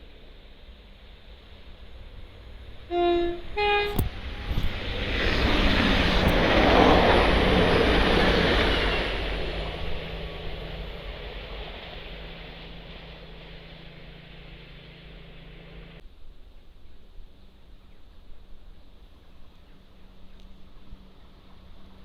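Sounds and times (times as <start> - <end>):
train passing at speed: 0.0 - 16.0, 17.5 - 22.0
train horn: 2.8 - 4.8.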